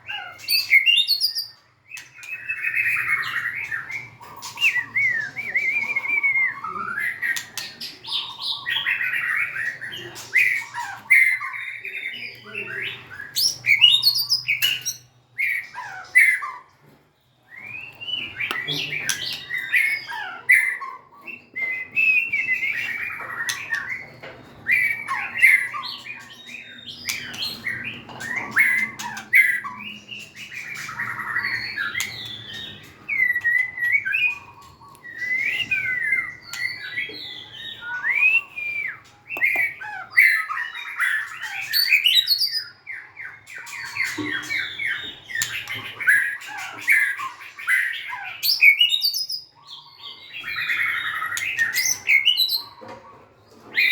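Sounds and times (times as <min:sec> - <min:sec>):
bird singing whistled song: 0:00.1 - 0:16.6, 0:17.4 - 0:52.8.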